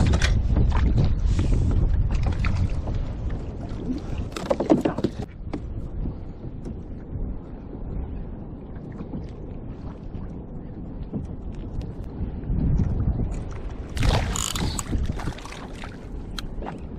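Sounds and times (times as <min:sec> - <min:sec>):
wind buffeting microphone: 0:00.0 - 0:16.9
small water splashes: 0:13.5 - 0:16.8.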